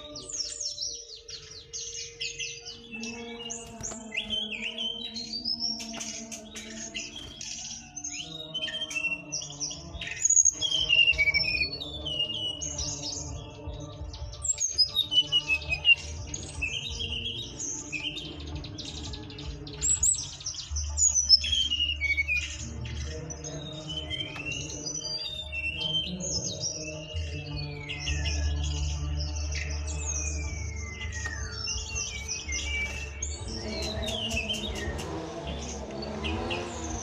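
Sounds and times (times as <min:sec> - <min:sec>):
bird chirping: 0:00.0 - 0:37.0
music with bass line: 0:10.6 - 0:37.0.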